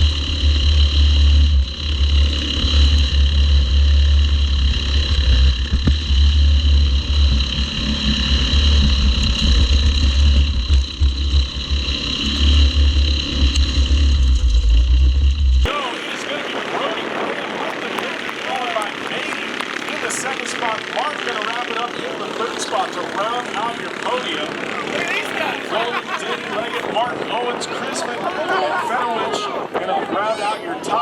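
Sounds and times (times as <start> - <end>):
race car engines whining: 0.0 - 31.0.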